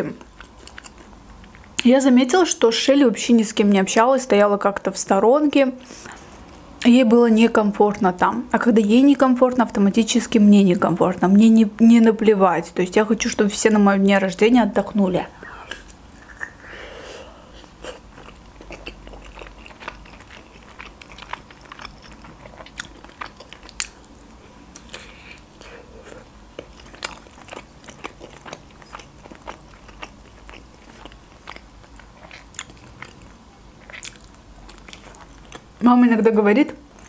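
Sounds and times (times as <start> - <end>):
person chewing with smacks: 0.0 - 1.9, 17.6 - 35.8.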